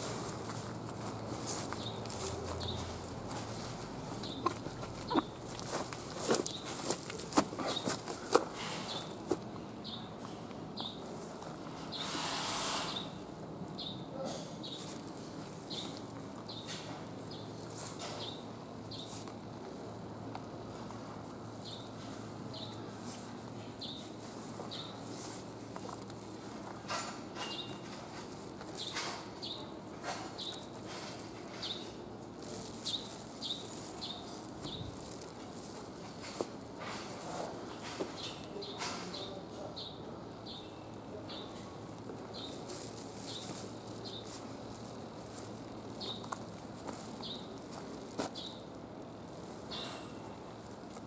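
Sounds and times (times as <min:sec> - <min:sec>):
rustling: 0:00.0 - 0:09.5, 0:20.8 - 0:38.4, 0:41.4 - 0:51.0
small bird chirping: 0:04.2 - 0:05.4
brief hiss: 0:12.0 - 0:13.1.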